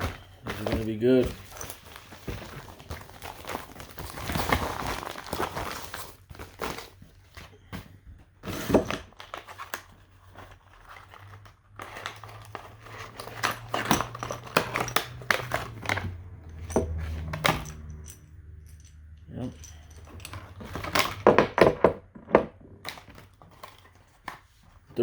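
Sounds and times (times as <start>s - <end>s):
plastic packaging crinkling and tearing: 0.0s - 7.7s.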